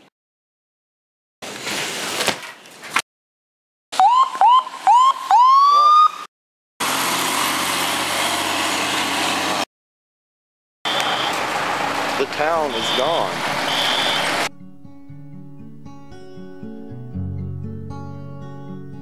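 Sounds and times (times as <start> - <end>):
emergency siren whooping: 4.0 - 6.3, 10.9 - 14.5.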